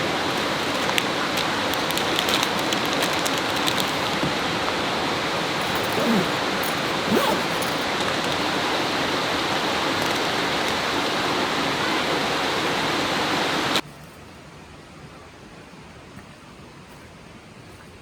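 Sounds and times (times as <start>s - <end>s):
river water rushing: 0.0s - 13.8s
faint hiss: 0.0s - 13.9s.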